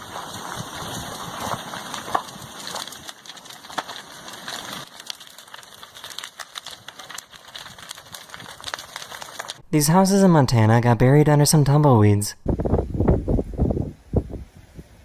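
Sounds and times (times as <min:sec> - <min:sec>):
fire crackling and popping: 0:00.0 - 0:09.7.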